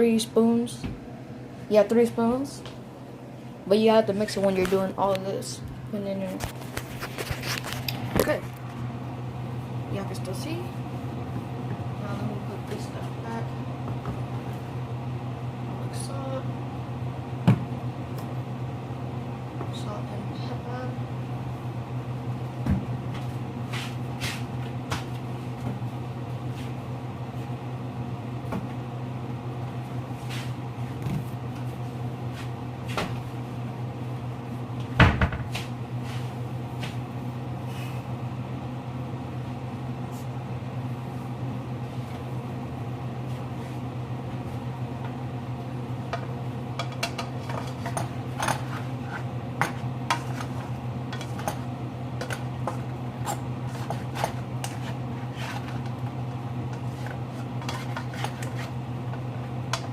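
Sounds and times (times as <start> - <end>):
steady low hum: 0.0 - 59.9
pots and utensils clinking: 46.8 - 51.6.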